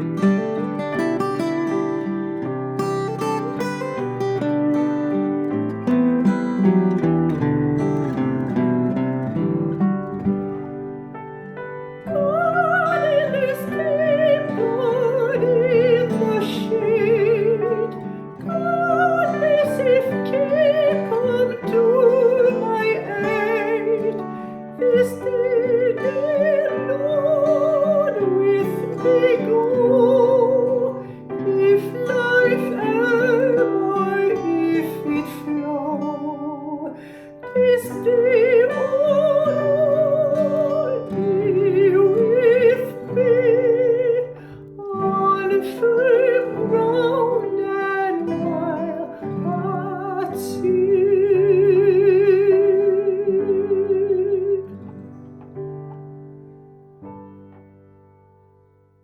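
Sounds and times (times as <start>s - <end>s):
instrumental accompaniment: 0.0s - 59.0s
classical singer with vibrato: 11.9s - 55.0s.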